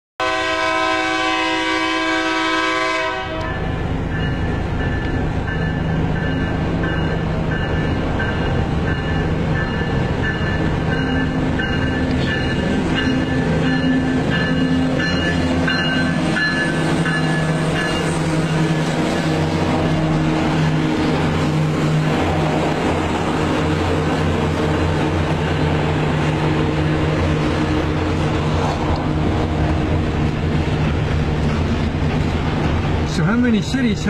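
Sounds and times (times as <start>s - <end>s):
locomotive horn chord: 0.2s - 3.8s
train rumble heard from car: 0.2s - 34.0s.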